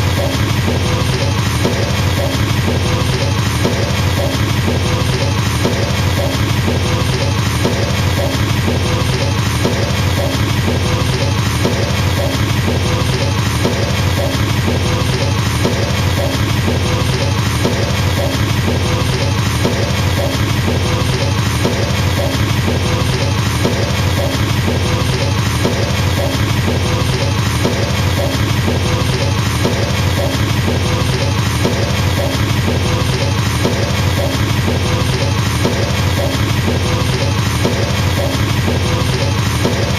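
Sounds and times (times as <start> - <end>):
drum kit pattern: 0.0 - 39.9.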